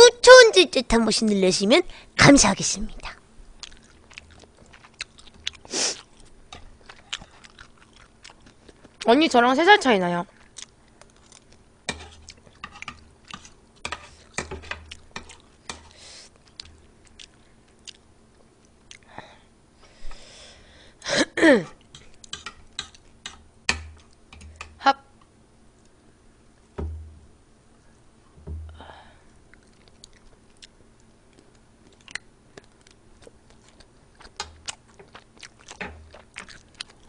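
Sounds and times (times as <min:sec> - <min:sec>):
person chewing: 0:03.6 - 0:09.1, 0:10.3 - 0:19.1, 0:29.5 - 0:37.0.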